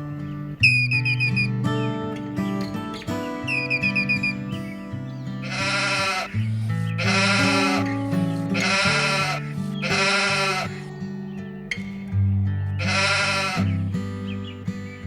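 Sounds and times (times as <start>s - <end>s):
bleats: 5.4s - 10.9s, 12.8s - 14.0s.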